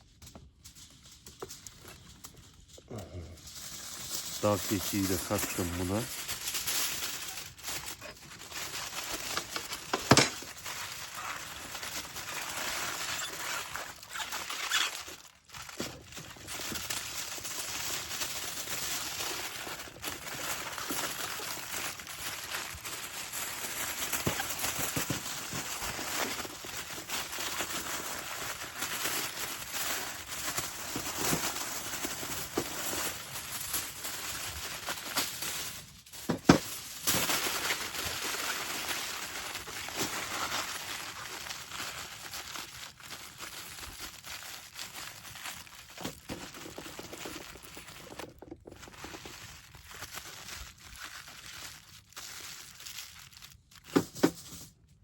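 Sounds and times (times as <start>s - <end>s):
rustling and crackling: 0.1s - 41.1s.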